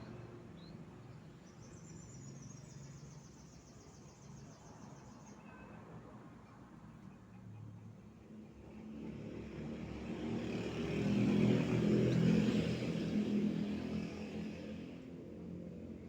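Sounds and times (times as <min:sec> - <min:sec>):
motor vehicle passing by: 0:08.5 - 0:16.0.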